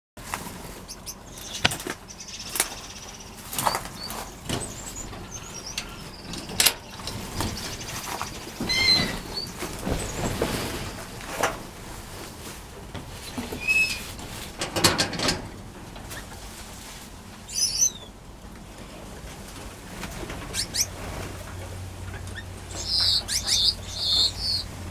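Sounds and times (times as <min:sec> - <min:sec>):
birds fluttering wings: 0:00.3 - 0:17.8
bird falling call: 0:00.9 - 0:06.3, 0:07.0 - 0:11.0, 0:22.7 - 0:24.7
bird chirps: 0:00.9 - 0:10.3, 0:17.5 - 0:18.1, 0:22.3 - 0:24.7.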